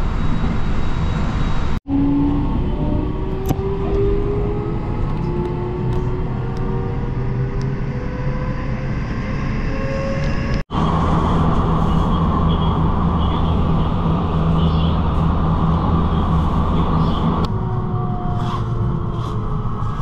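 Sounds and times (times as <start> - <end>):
train wheels rumbling on rails: 10.2 - 17.5.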